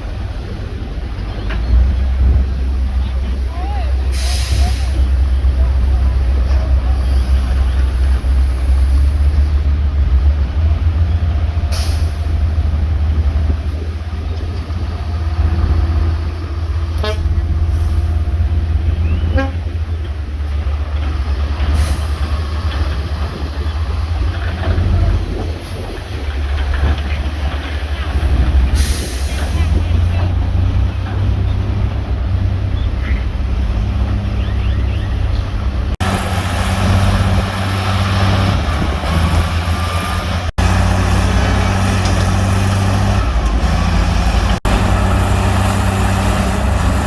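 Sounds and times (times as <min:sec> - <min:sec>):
heavy diesel machinery rumbling: 0:00.0 - 0:47.0
horn-like steady tone: 0:17.0 - 0:17.4.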